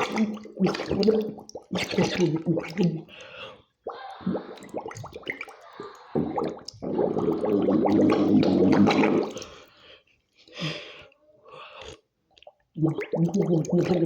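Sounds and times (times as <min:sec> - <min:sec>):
water splashing and gurgling: 0:00.0 - 0:03.1, 0:04.2 - 0:09.6.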